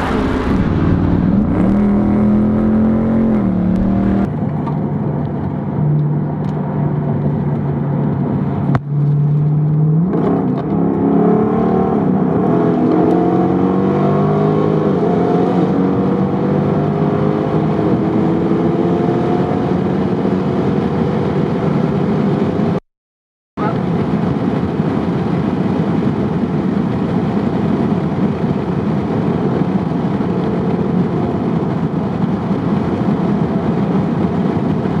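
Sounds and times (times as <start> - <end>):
engine accelerating through exhaust: 0.0 - 4.3, 7.5 - 22.8.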